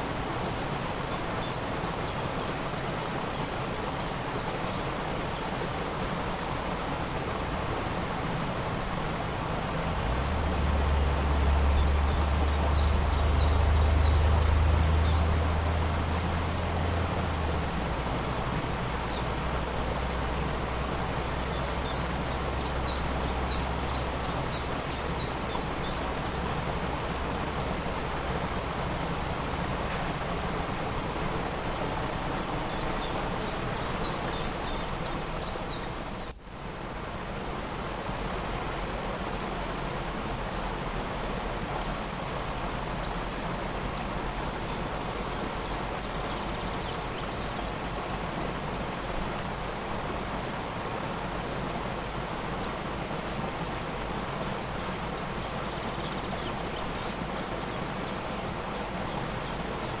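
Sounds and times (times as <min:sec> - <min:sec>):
waterfall rushing: 0:00.0 - 1:00.0
songbird high chirps: 0:01.1 - 0:05.9, 0:11.7 - 0:15.4, 0:18.9 - 0:19.3, 0:21.4 - 0:26.4, 0:32.6 - 0:37.1, 0:44.7 - 1:00.0.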